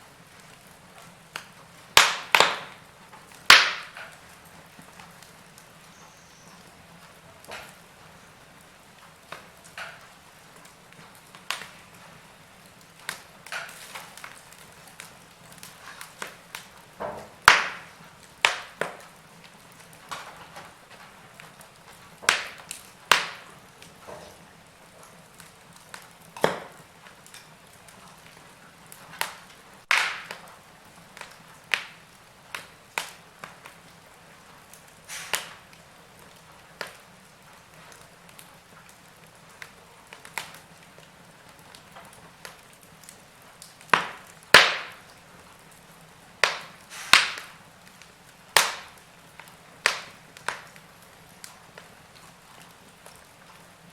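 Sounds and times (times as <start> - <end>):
faint steady hiss: 0.0 - 53.9
wood fire crackling: 0.0 - 53.9.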